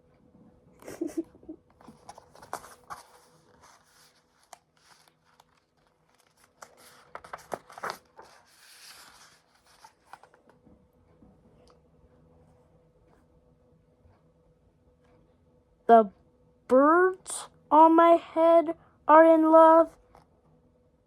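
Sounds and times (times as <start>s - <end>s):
book pages rustling: 1.8s - 10.6s.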